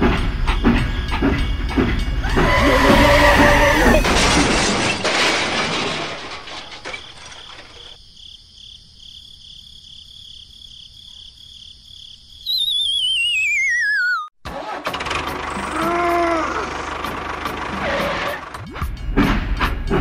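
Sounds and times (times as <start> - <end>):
crash with breaking glass: 3.8 - 8.0
high pulsing chirp: 12.4 - 14.3
whistle sliding down in pitch: 12.5 - 14.3.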